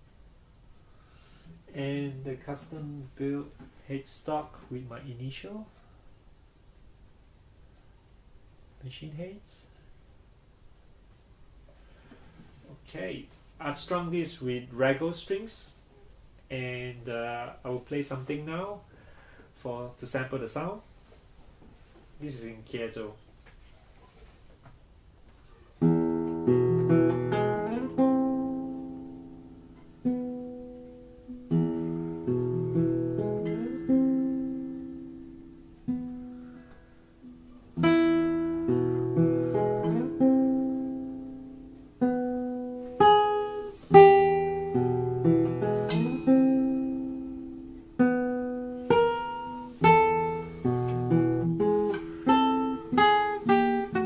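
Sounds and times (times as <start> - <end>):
acoustic guitar plucked chords: 25.8 - 54.0.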